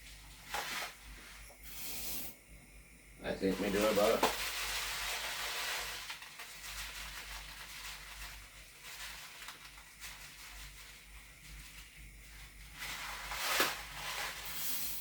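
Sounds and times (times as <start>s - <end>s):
rice clicks and rustles: 0.0s - 2.1s, 3.4s - 15.0s
rice grains pouring: 3.4s - 12.0s, 12.6s - 15.0s.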